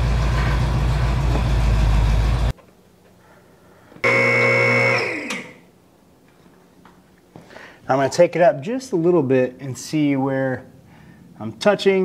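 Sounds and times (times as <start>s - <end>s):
car engine idling: 0.0s - 2.5s
loud tone with high whine: 4.0s - 5.7s.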